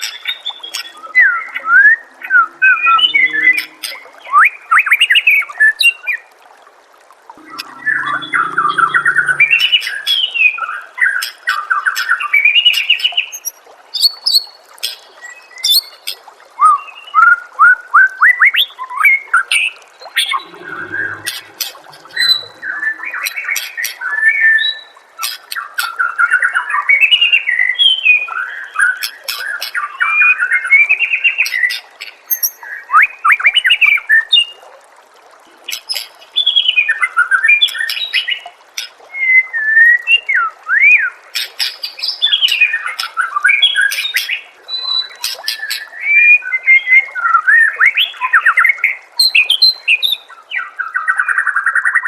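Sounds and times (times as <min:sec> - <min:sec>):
bird singing whistled phrases: 0:00.3 - 0:04.9.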